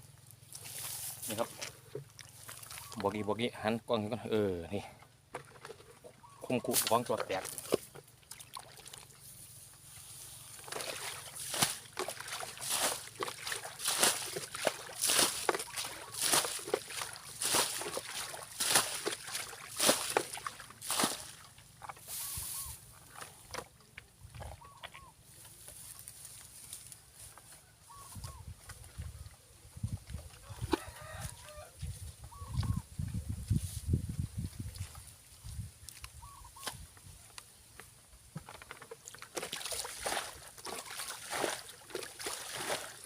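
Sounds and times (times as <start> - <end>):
splashing in shallow muddy water: 0.4 - 3.4, 5.3 - 27.1, 29.9 - 31.7, 34.4 - 36.7, 38.5 - 43.0
faint chicken calls: 22.1 - 22.9, 26.9 - 29.4, 30.2 - 32.9.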